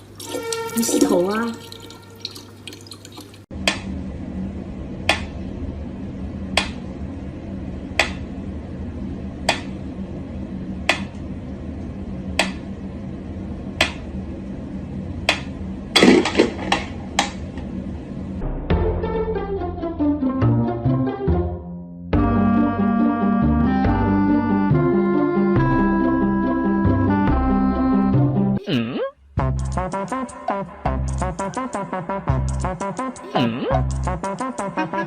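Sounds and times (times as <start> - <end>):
low hum: 3.5 - 20.0.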